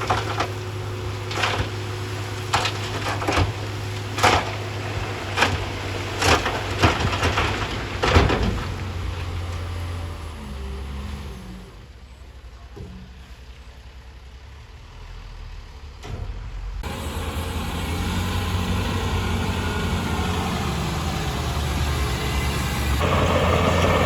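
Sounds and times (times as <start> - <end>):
heavy diesel engine droning: 0.0 - 24.0.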